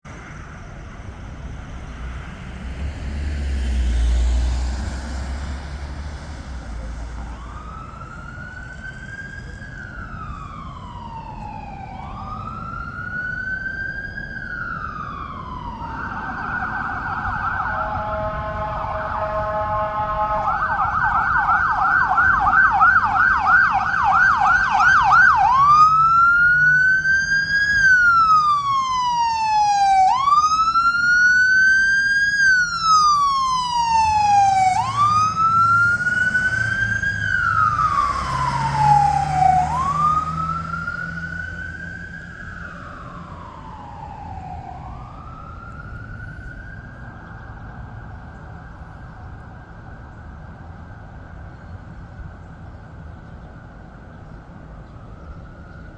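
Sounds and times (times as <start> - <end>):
fire engine siren wailing: 0.0 - 51.5.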